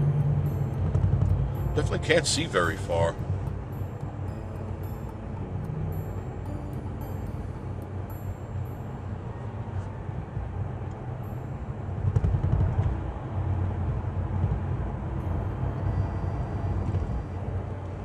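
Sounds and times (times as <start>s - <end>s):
car road noise rumble: 0.0s - 18.0s.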